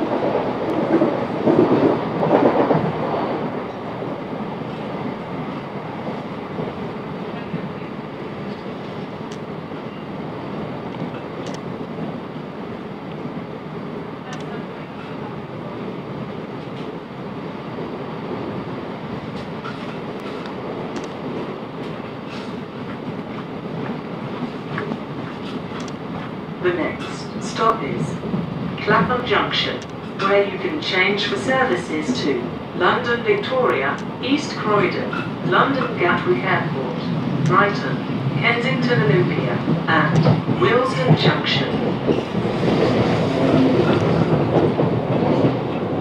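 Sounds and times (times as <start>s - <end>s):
train wheels rumbling on rail: 0.0s - 46.0s
faint clicks: 10.9s - 11.7s.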